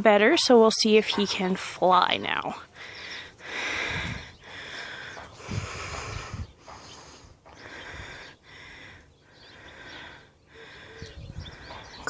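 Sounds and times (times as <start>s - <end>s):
person breathing: 2.7s - 12.0s.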